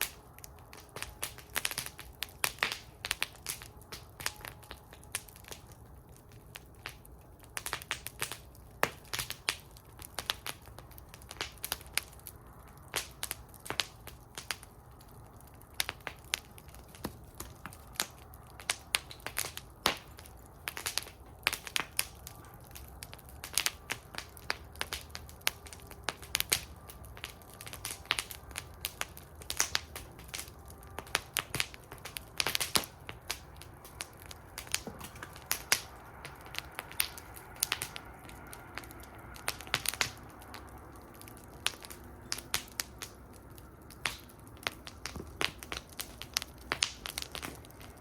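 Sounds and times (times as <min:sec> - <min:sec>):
low rumble of flames: 0:00.0 - 0:48.0
wood fire crackling and popping: 0:00.0 - 0:48.0.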